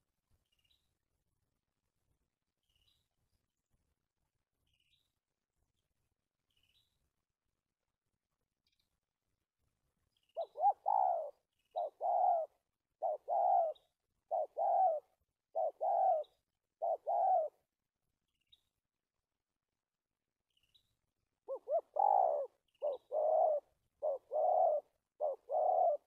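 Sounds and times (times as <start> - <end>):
dove cooing: 10.4 - 17.6, 21.4 - 26.0.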